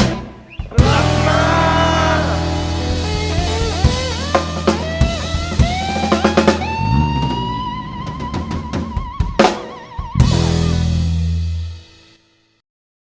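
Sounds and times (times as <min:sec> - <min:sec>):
drum kit hits: 0:00.0 - 0:11.9
electric bass: 0:00.0 - 0:11.9
slide guitar: 0:00.7 - 0:09.2.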